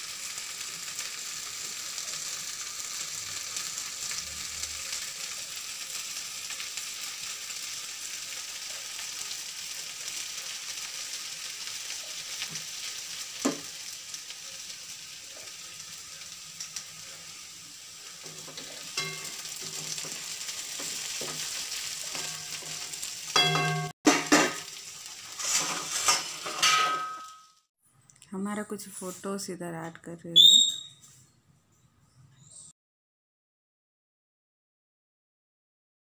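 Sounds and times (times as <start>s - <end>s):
food sizzling in hot oil: 0.0s - 27.6s.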